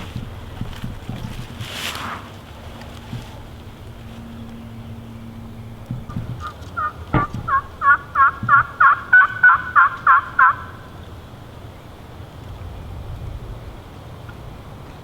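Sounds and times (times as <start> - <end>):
turkey yelps: 6.2 - 11.0.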